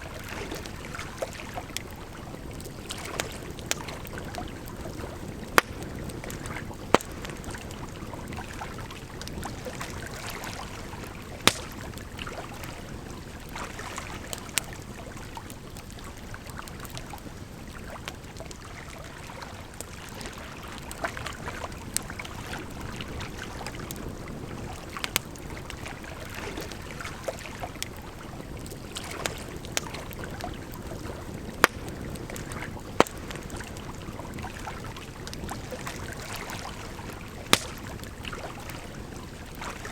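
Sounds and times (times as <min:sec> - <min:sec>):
flowing water rushing: 0:00.0 - 0:15.2
campfire crackling and popping: 0:00.0 - 0:39.9.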